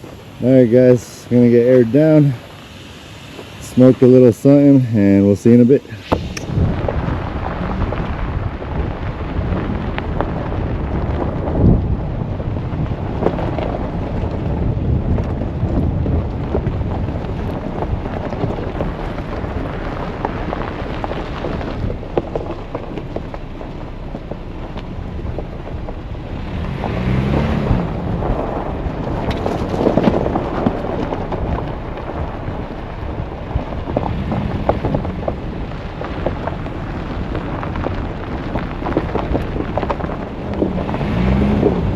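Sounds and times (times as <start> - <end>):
truck rumbling on dirt trail: 0.0 - 41.9
wind buffeting microphone: 0.0 - 41.9
knocks and rattles: 29.2 - 31.7.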